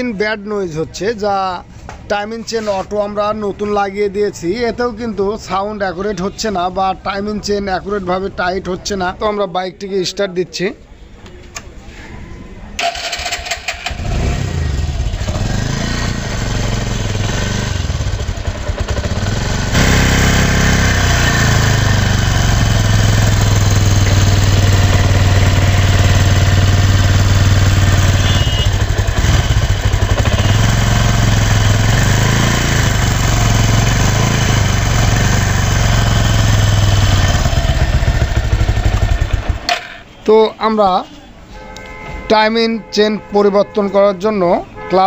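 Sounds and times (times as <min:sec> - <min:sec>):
motorcycle engine running: 0:13.7 - 0:39.7.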